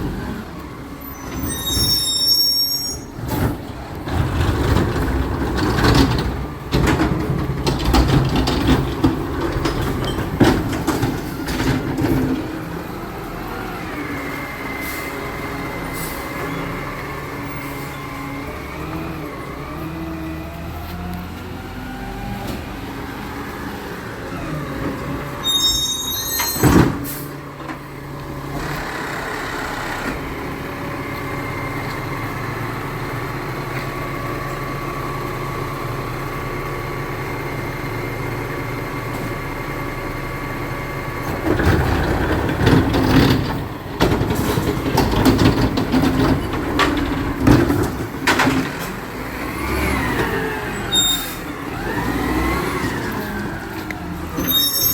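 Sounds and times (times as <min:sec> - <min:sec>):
recycling truck engine running: 0:03.0 - 0:54.9
metal clanks and bangs: 0:03.2 - 0:12.6, 0:41.3 - 0:49.2.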